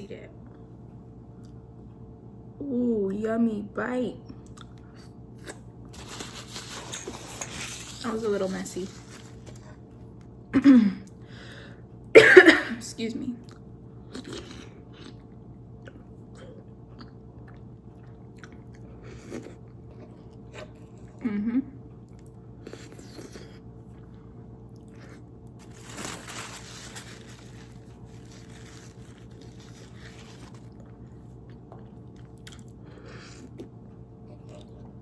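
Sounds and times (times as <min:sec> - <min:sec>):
faint steady hum: 0:00.0 - 0:35.0
chewing noodles: 0:13.4 - 0:21.2, 0:22.1 - 0:35.0.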